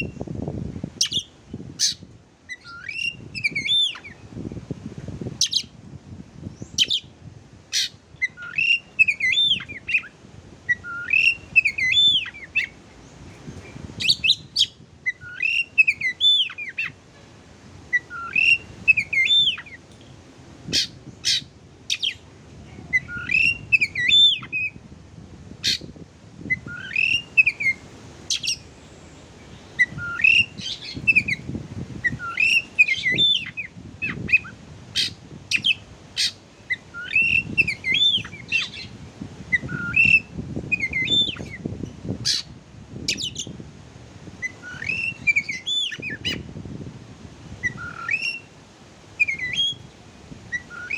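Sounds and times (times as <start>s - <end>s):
bird whistled song: 1.0s - 4.3s, 5.4s - 5.7s, 6.6s - 7.1s, 7.7s - 12.8s, 13.6s - 17.0s, 17.9s - 19.8s, 20.7s - 22.2s, 22.8s - 24.8s, 25.6s - 28.7s, 29.6s - 43.6s, 44.4s - 46.5s, 47.6s - 48.5s, 49.2s - 49.9s, 50.5s - 50.9s.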